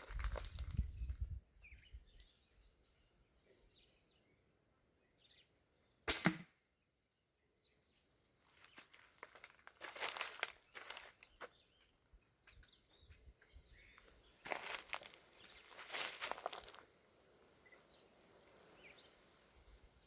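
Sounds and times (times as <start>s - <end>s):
air rifle shot: 6.1s - 6.5s
rustling handling noises: 8.4s - 11.5s, 14.4s - 16.8s.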